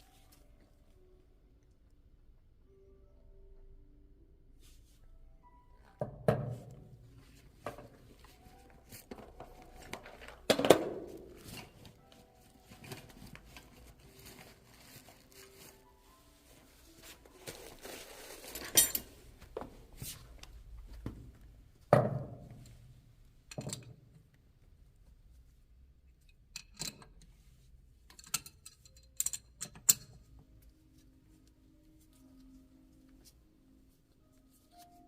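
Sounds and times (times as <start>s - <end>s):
rustling: 11.2s - 20.4s
metal parts clinking and knocking: 18.4s - 19.1s, 23.5s - 24.0s, 26.5s - 27.2s, 28.1s - 30.3s.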